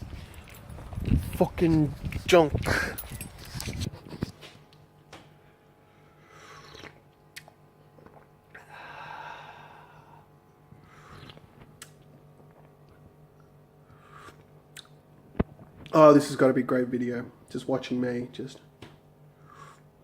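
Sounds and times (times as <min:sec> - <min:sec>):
steady low hum: 0:00.0 - 0:20.0
faint breathing: 0:08.6 - 0:11.4, 0:19.4 - 0:19.9.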